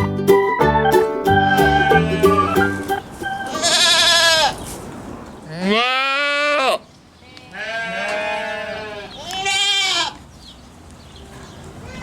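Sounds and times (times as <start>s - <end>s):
farm animal bleating: 1.5s - 4.7s, 5.4s - 10.3s.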